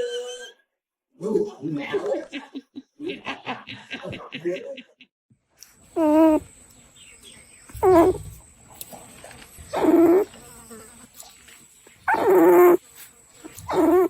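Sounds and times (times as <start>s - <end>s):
dog whining: 6.0s - 6.4s, 7.8s - 8.2s, 9.7s - 10.3s, 12.1s - 12.8s, 13.6s - 14.0s.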